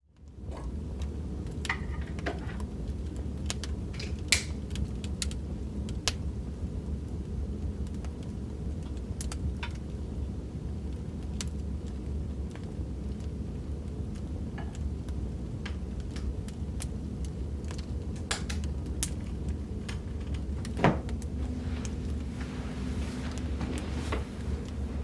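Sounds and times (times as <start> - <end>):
wood fire crackling: 0.2 - 25.0
fire pops and snaps: 0.5 - 6.2, 7.0 - 10.0, 10.9 - 21.4
low rumble: 19.2 - 25.0.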